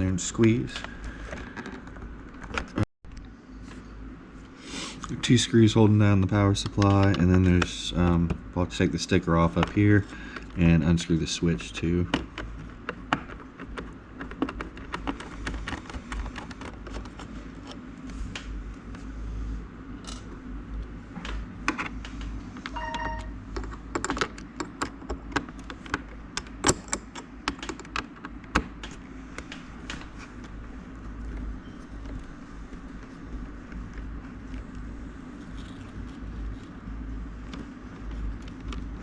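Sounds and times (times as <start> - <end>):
brief ringing tone: 22.7 - 23.4.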